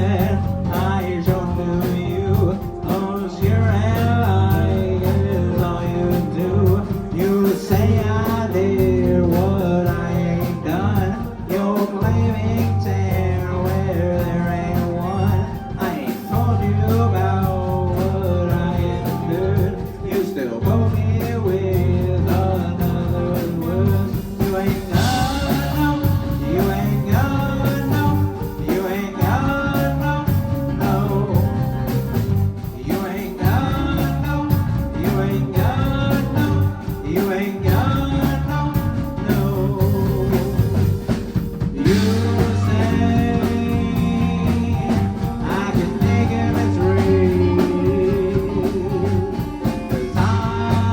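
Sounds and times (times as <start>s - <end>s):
live band playing: 0.0s - 50.9s
person singing: 0.0s - 50.9s.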